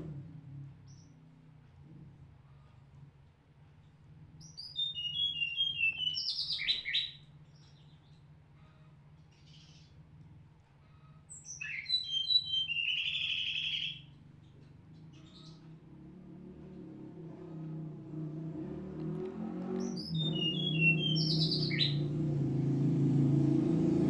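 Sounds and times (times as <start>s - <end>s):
songbird singing trills: 4.4s - 8.2s, 11.3s - 15.8s, 19.8s - 22.2s.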